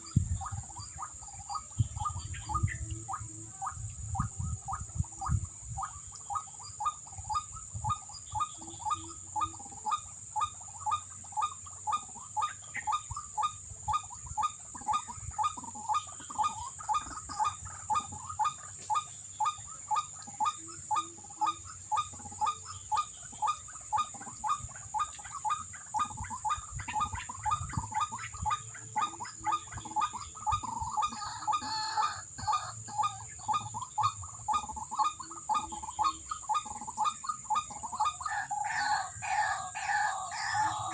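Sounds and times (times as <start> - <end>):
waterhen call through speaker: 19.4 - 40.9.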